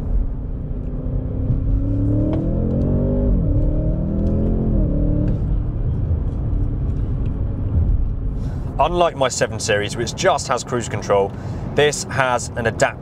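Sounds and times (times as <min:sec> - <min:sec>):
car engine accelerating hard: 0:00.0 - 0:08.8.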